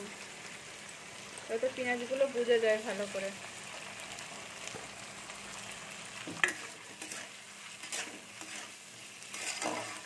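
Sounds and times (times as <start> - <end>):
potatoes and onions sizzling in oil: 0.0 - 10.0
metal spatula scraping pan: 6.3 - 10.0.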